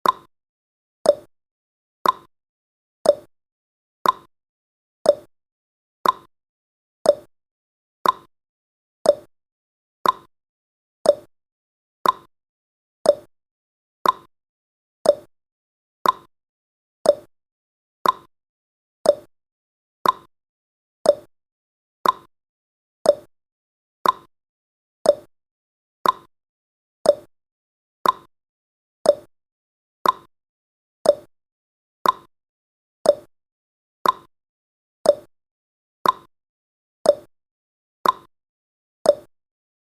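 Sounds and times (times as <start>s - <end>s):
clock ticking: 2.0s - 2.3s, 4.0s - 4.3s, 6.0s - 6.3s, 8.0s - 8.3s, 10.0s - 10.3s, 12.0s - 12.3s, 14.0s - 14.3s, 15.1s - 15.3s, 16.0s - 16.3s, 17.1s - 17.3s, 18.0s - 18.3s, 19.1s - 19.3s, 20.0s - 20.3s, 21.1s - 21.3s, 22.0s - 22.3s, 24.0s - 24.3s, 26.0s - 26.3s, 28.0s - 28.3s, 29.1s - 29.3s, 30.0s - 30.3s, 31.1s - 31.3s, 32.0s - 32.3s, 33.1s - 33.3s, 34.0s - 34.3s, 35.1s - 35.3s, 36.0s - 36.3s, 38.0s - 38.3s, 39.1s - 39.3s.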